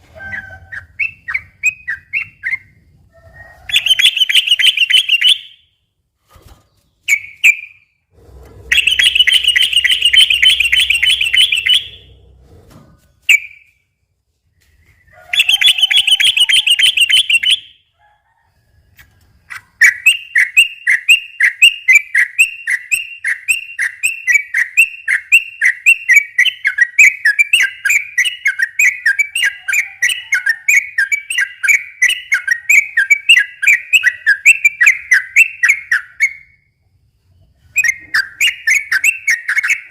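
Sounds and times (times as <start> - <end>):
bulbul trilling song: 0.1 - 5.8, 8.6 - 12.2, 14.9 - 17.8.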